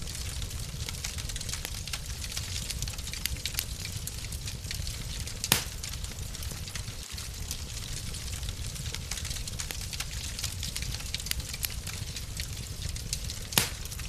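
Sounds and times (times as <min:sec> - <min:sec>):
fire popping: 0:00.0 - 0:14.0
low rumble of flames: 0:00.0 - 0:14.0.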